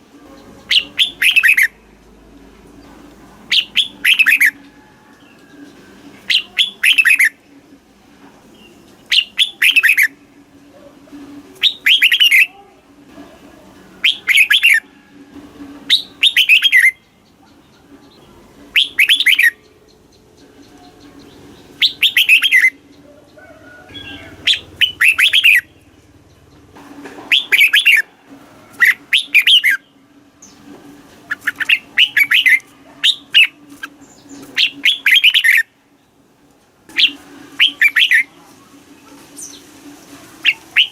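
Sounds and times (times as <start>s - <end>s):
bird singing warbling phrases: 0.3s - 2.0s, 3.5s - 4.6s, 6.3s - 7.4s, 8.6s - 10.2s, 11.6s - 12.6s, 14.0s - 14.9s, 15.9s - 26.7s, 27.3s - 28.0s, 28.8s - 30.6s, 31.3s - 35.8s, 36.9s - 38.4s, 40.4s - 40.9s.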